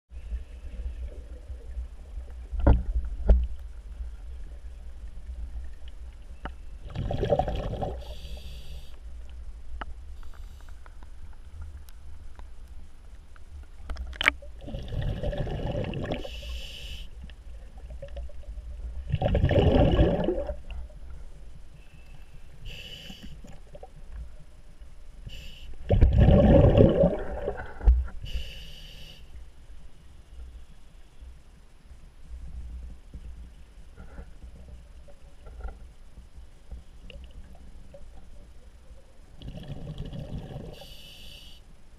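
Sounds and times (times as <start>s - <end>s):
steady low rumble: 0.1s - 39.9s
rush of exhaled bubbles: 6.8s - 8.2s, 14.6s - 16.4s, 19.0s - 20.7s, 25.9s - 27.8s, 39.4s - 40.8s
short high hiss: 16.2s - 17.1s, 21.9s - 23.5s, 25.3s - 25.8s, 28.2s - 29.4s, 40.8s - 41.6s.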